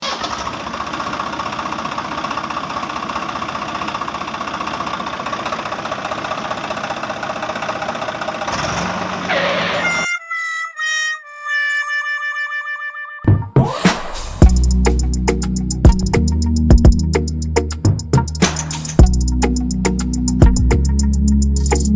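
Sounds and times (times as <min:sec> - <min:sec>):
tractor engine chugging: 0:00.0 - 0:09.6, 0:14.4 - 0:21.0
rising tone: 0:13.3 - 0:17.2
low hum: 0:13.9 - 0:17.6.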